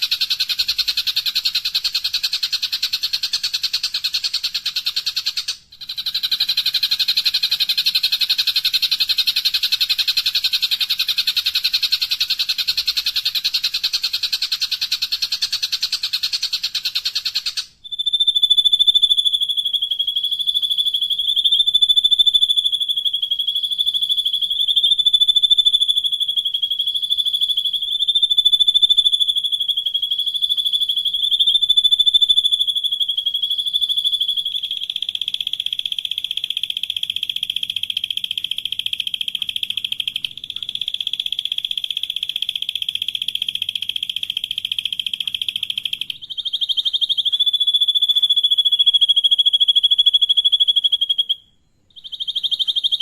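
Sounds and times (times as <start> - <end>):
bird rasping trill: 38.7 - 53.0.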